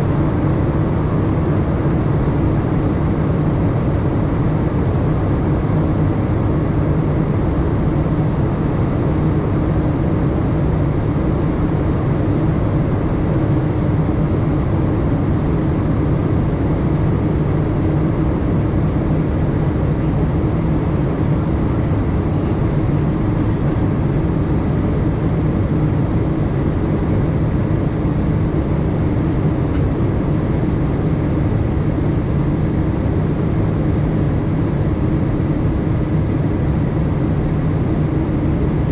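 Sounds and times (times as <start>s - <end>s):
airliner cabin drone: 0.0s - 38.9s.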